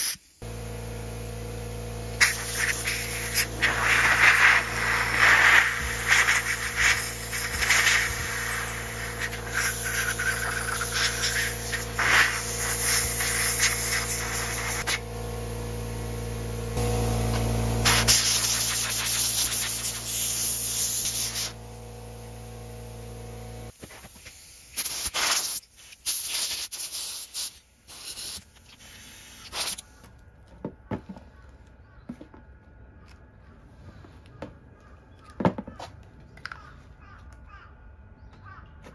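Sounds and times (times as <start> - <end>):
hissing spray: 0.0 - 29.9
mechanical hum: 0.1 - 25.2.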